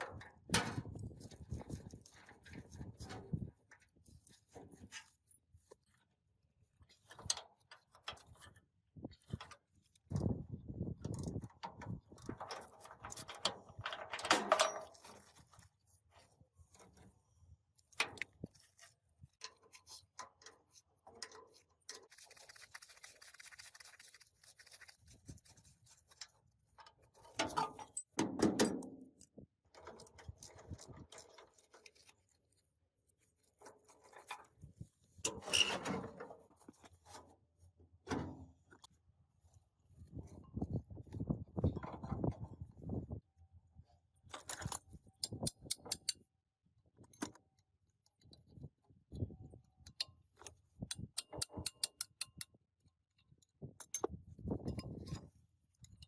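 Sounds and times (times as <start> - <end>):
objects knocking and scraping: 26.1 - 32.3, 33.5 - 37.3.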